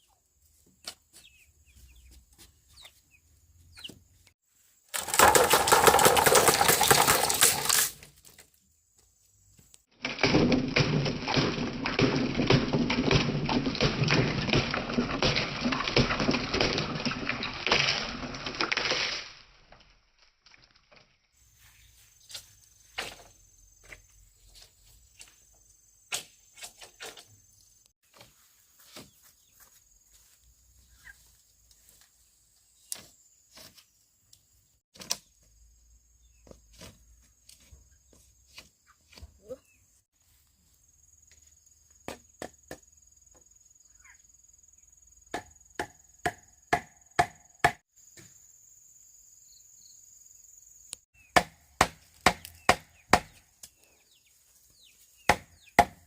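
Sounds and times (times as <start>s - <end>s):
bamboo chopping strikes: 45.3s - 48.3s, 51.2s - 53.8s, 55.3s - 56.0s.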